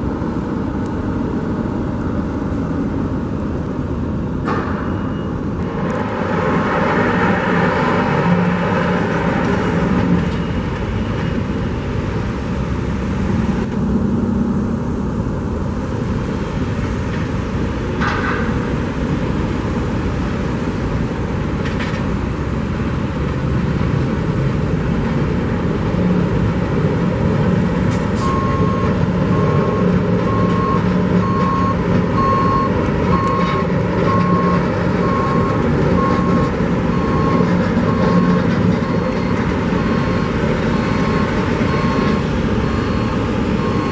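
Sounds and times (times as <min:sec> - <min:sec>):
heavy vehicle engine running: 0:00.0 - 0:43.9
back-up alarm beeping: 0:04.7 - 0:05.7, 0:28.2 - 0:43.9.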